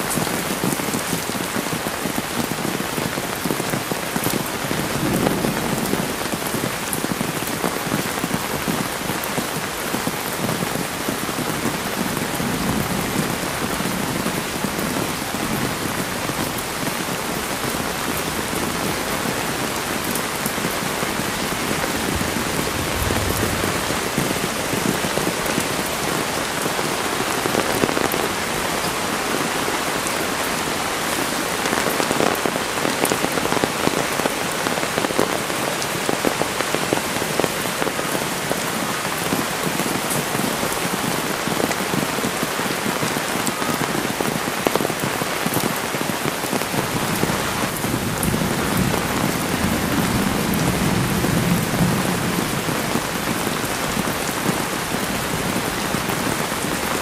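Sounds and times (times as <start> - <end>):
heavy rain pouring: 0.0 - 57.0
deep low rumble: 22.2 - 24.5.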